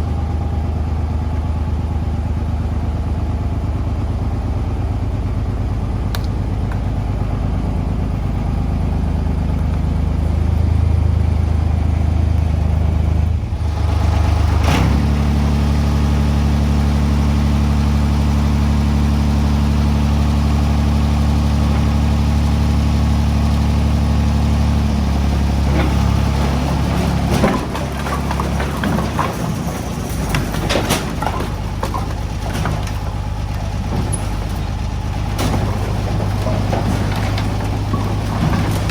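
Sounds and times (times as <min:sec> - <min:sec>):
tractor engine running: 0:00.0 - 0:38.9
knocks and clatter: 0:25.0 - 0:38.9.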